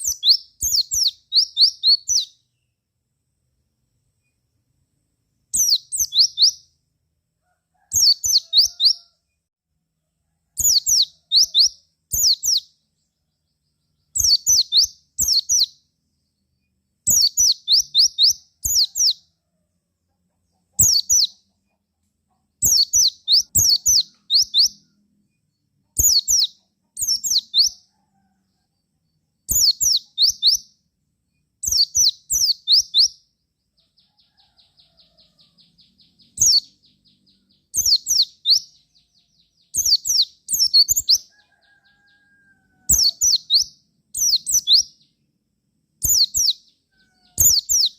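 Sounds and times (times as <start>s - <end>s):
white-eye bird singing: 0.0s - 2.8s, 5.5s - 6.7s, 7.9s - 9.0s, 10.6s - 19.3s, 20.5s - 21.7s, 22.5s - 27.9s, 29.3s - 45.3s, 46.0s - 47.9s.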